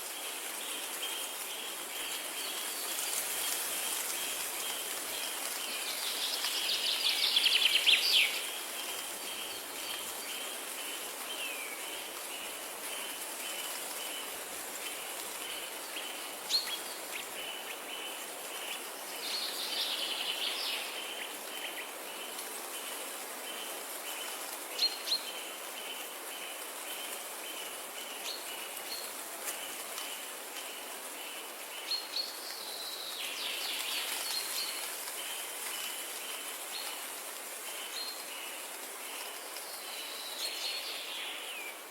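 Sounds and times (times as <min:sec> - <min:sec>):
hiss of rain or running water: 0:00.0 - 0:41.9
birds singing: 0:05.4 - 0:13.7.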